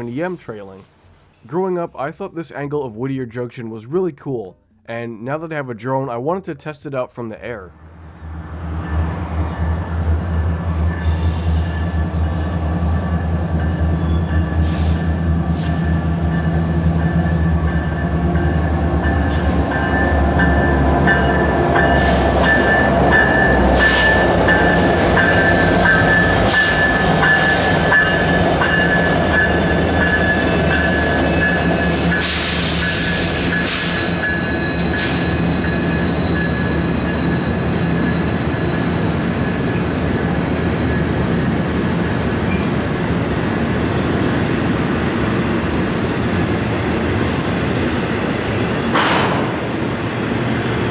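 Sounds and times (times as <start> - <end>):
diesel locomotive engines rumbling: 0.0 - 2.4, 7.7 - 50.9
train wheels squealing: 8.8 - 43.8.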